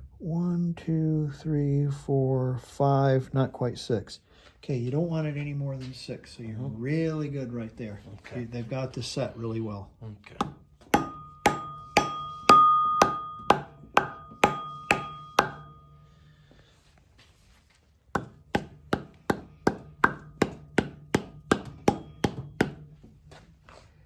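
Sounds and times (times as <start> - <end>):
hammer tapping metal: 10.4 - 16.0, 18.2 - 23.0.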